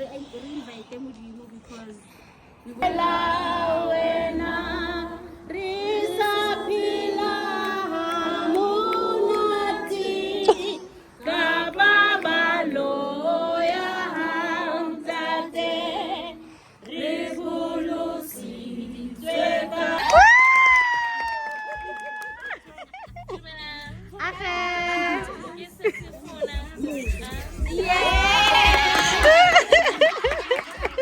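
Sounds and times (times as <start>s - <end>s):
group singing a hymn: 2.6s - 20.3s, 25.0s - 31.0s.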